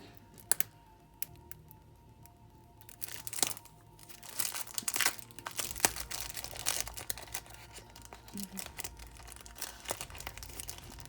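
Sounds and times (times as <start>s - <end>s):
faint background music: 0.0s - 11.0s
plastic packaging crinkling: 2.8s - 11.0s.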